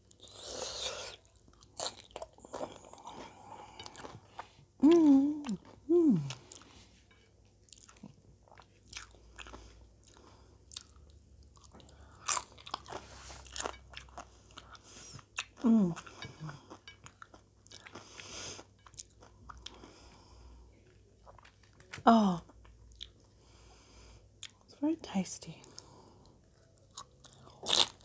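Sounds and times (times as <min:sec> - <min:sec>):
person humming: 0:04.8 - 0:06.5.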